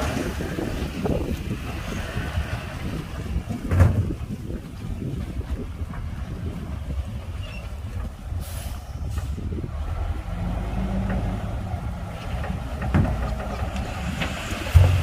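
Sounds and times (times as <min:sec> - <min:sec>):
bulldozer diesel engine rumbling: 0:00.0 - 0:15.0
knocks: 0:14.7 - 0:15.0.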